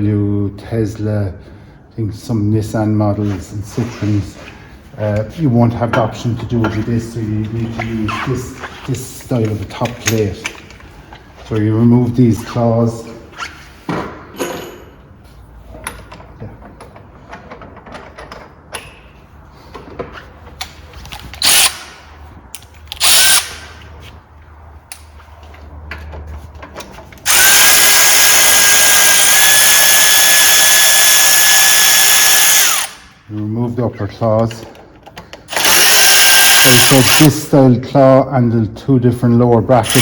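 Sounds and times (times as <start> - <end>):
power drill whining: 21.4 - 21.8, 23.0 - 23.6, 27.2 - 33.0, 35.5 - 37.3.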